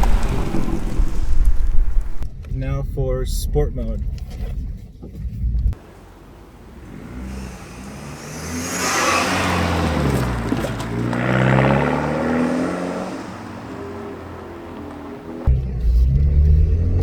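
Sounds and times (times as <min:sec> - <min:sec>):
intake air rushing: 0:00.0 - 0:02.3
car engine accelerating: 0:00.0 - 0:02.4, 0:05.5 - 0:17.0.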